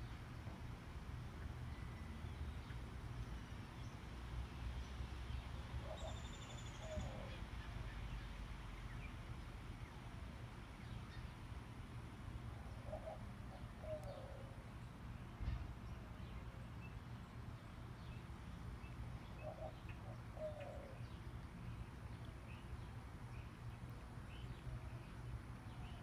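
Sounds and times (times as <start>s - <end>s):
bird calling: 5.8s - 8.0s, 12.8s - 14.6s, 19.3s - 21.2s.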